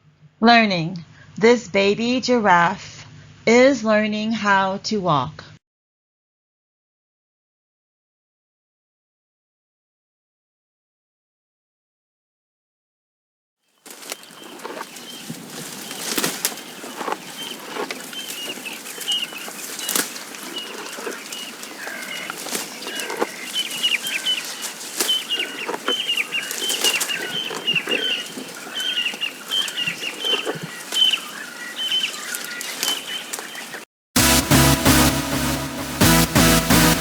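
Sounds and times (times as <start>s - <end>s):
rustles and taps: 13.9s - 31.3s
small birds chirping: 13.9s - 33.9s.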